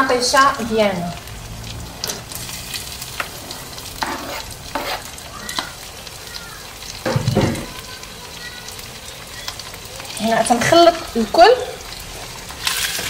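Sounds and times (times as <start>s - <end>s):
food sizzling in a frying pan: 0.0s - 13.0s
wooden spoon scraping a pan: 2.1s - 5.7s
thump: 7.1s - 7.7s.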